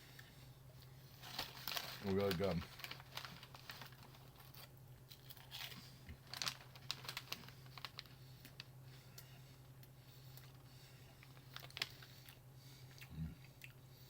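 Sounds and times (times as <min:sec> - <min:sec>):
steady low hum: 0:00.0 - 0:14.0
plastic snack bag crinkling: 0:01.2 - 0:08.7, 0:11.3 - 0:12.4
crisps being eaten: 0:01.3 - 0:08.6, 0:11.3 - 0:13.8.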